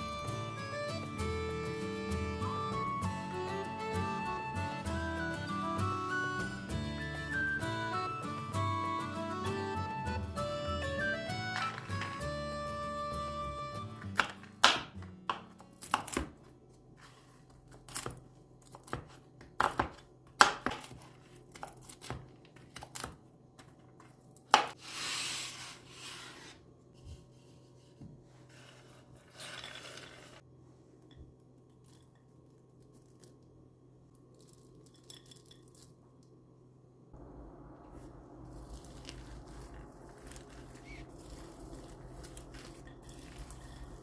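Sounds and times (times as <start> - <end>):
faint steady hum: 30.4 - 44.0.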